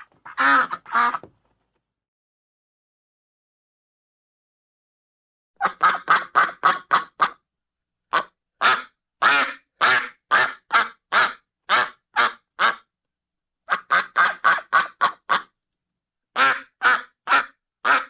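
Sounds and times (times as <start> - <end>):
duck quacking: 0.0 - 1.3, 5.6 - 7.4, 8.1 - 12.9, 13.7 - 15.5, 16.4 - 18.0.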